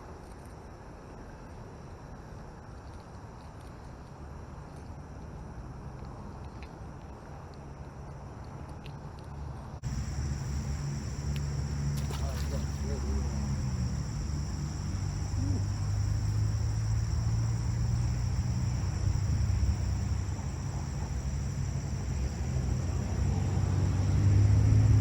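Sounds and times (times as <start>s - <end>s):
high-pitched insect drone: 9.8s - 25.0s
low rumble: 9.8s - 25.0s.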